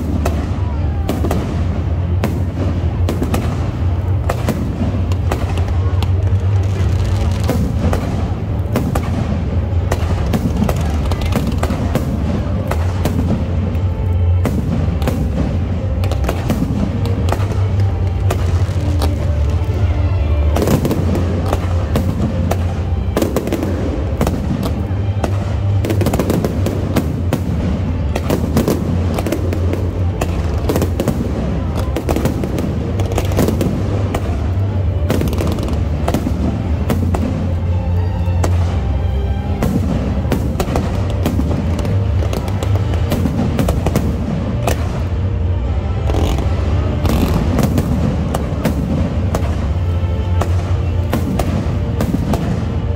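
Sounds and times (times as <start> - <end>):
show music: 0.0 - 52.9.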